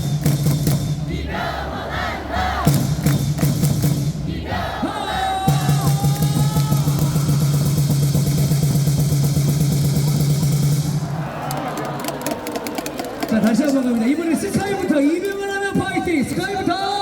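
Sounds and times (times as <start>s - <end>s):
cheer music over loudspeakers: 0.1s - 17.0s
crowd voices: 1.0s - 2.8s, 10.9s - 17.0s.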